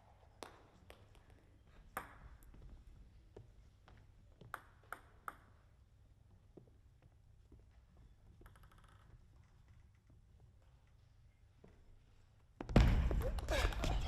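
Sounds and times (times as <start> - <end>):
table tennis ball bouncing: 1.9 - 2.6, 4.4 - 5.8, 8.4 - 9.2.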